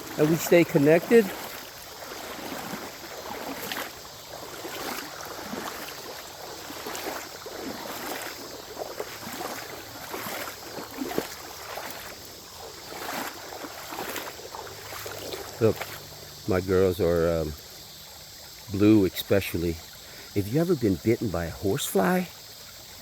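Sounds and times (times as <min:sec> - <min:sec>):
creek water splashing: 0:00.0 - 0:23.0.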